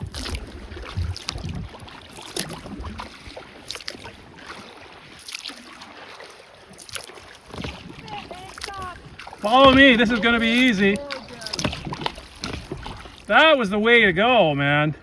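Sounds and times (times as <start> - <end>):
kayak paddle splashing: 0.0 - 15.0
low thumps: 7.6 - 13.1.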